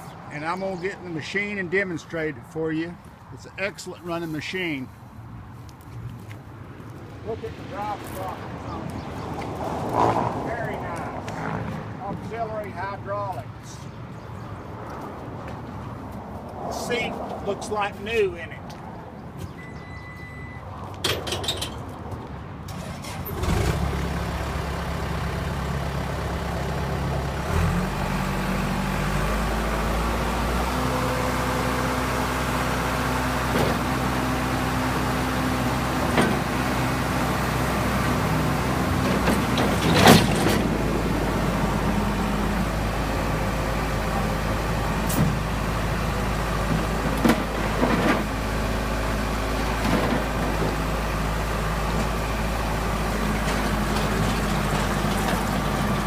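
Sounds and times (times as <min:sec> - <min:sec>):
diesel engine starting and revving: 0:22.6 - 0:56.0.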